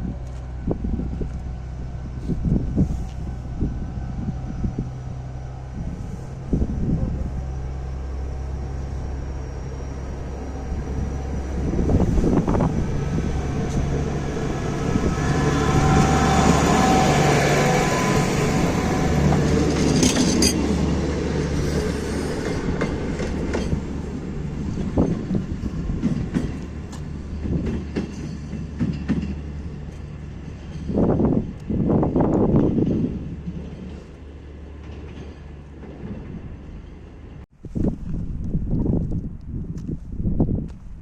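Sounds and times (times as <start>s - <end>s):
diesel railcar engine hum: 0.0s - 41.0s
wheels clicking over rail joints: 17.7s - 37.4s.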